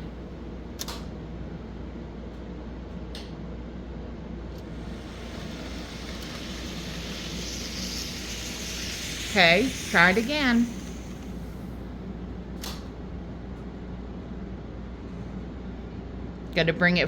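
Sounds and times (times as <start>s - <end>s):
model train whirring: 4.6s - 12.8s.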